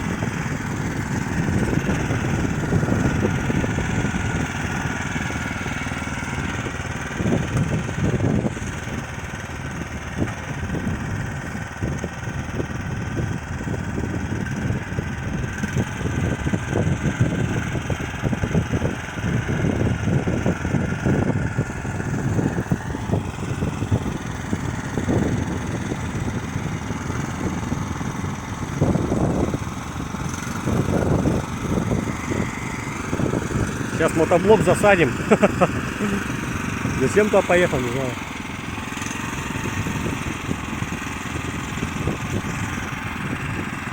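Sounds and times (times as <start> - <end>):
walk-behind tractor engine running: 0.0 - 43.9
blade pushing snow: 28.5 - 43.9.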